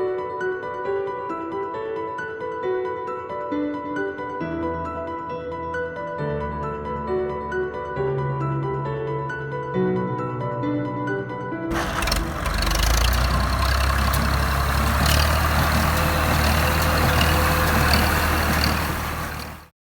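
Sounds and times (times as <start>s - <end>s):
diesel engine drone: 11.7s - 19.7s
loud mechanical noise: 11.7s - 19.7s.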